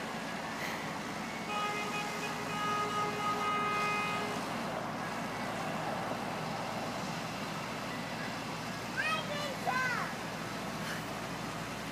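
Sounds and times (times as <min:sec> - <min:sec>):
street noise: 0:00.0 - 0:11.9
ice cream truck jingle: 0:01.2 - 0:05.6.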